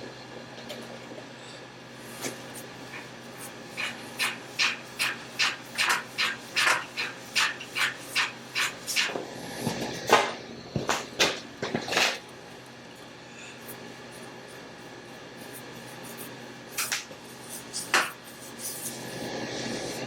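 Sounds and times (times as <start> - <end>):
hand sanding strokes: 2.1 - 9.1.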